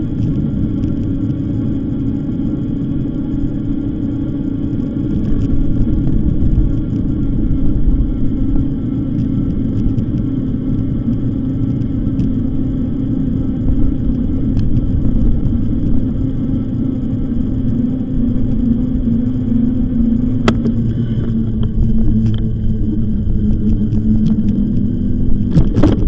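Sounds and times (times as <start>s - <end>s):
low hum: 0.0s - 26.0s
wind: 0.0s - 26.0s
sharp click: 20.4s - 21.4s.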